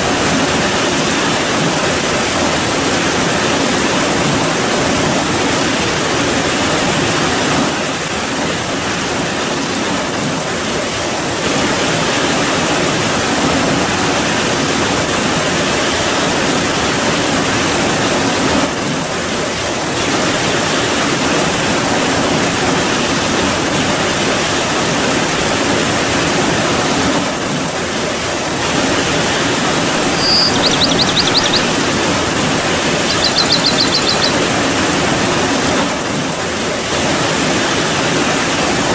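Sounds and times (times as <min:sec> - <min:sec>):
short high trills: 0:30.0 - 0:34.5.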